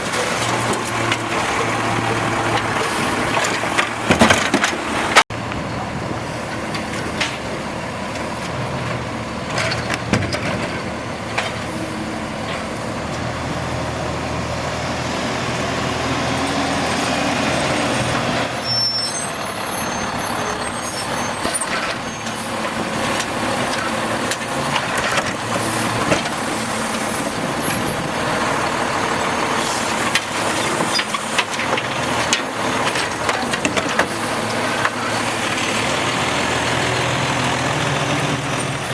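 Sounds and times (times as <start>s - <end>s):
garbage truck diesel engine: 0.0s - 38.9s
knocks and clanks: 3.3s - 5.2s.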